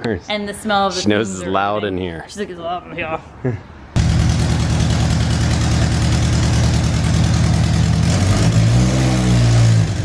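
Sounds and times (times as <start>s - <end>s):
car engine idling: 4.0s - 10.0s.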